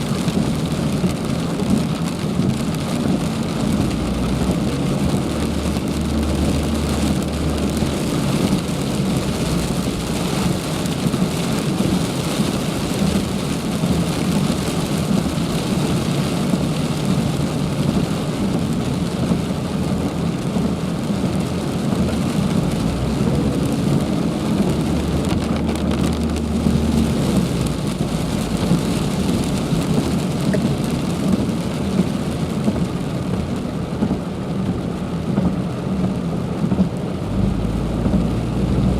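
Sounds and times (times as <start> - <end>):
heavy rain falling: 0.0 - 38.9
low rumble: 22.3 - 38.9.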